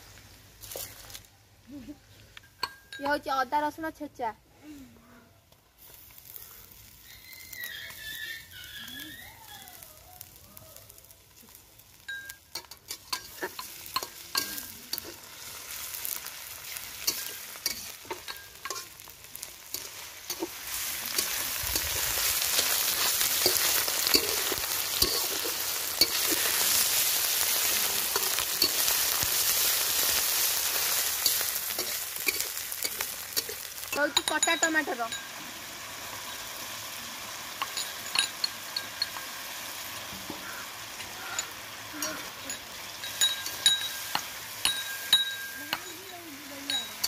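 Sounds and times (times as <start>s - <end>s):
onions frying in oil: 0.0s - 4.1s, 5.4s - 47.0s
metal spatula scraping wok: 12.2s - 35.4s.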